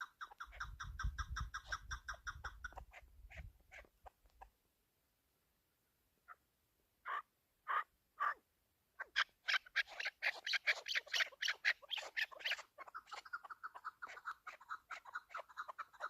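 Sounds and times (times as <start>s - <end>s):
partridge chattering calls: 0.0s - 3.9s, 7.0s - 8.4s, 9.0s - 16.0s.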